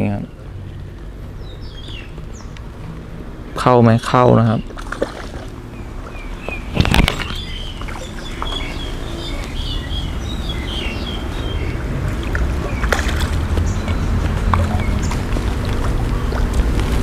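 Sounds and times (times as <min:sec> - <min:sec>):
small birds chirping: 0:00.0 - 0:17.0
steady low rumble: 0:00.0 - 0:17.0
sharp knocks or splashes: 0:04.6 - 0:05.6, 0:11.8 - 0:13.7.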